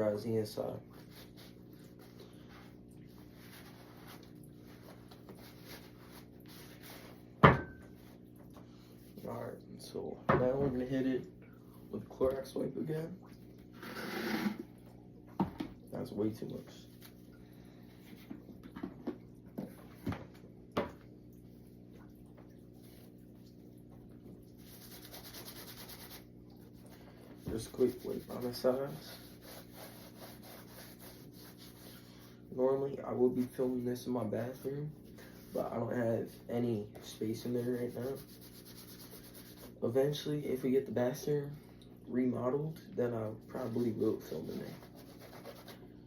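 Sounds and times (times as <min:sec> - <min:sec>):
low steady hum: 0:00.0 - 0:46.0
scratchy rubbing and handling: 0:01.0 - 0:07.2, 0:24.6 - 0:26.3, 0:27.5 - 0:32.4, 0:37.3 - 0:39.8, 0:43.5 - 0:45.8.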